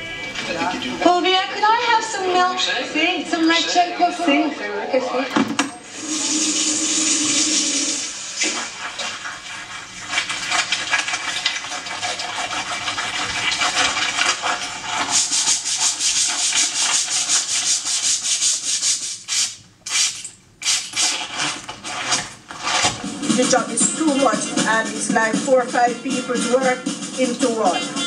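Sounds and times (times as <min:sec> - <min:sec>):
rapid scrubbing on a surface: 0:06.0 - 0:28.0.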